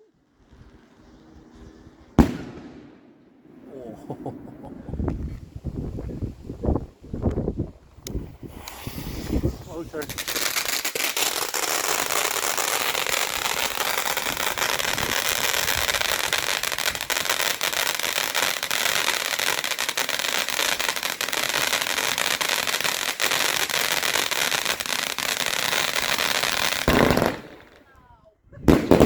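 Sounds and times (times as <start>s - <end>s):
firework crackles: 6.6s - 27.9s, 28.7s - 29.0s
firework fountain hissing: 8.0s - 27.6s.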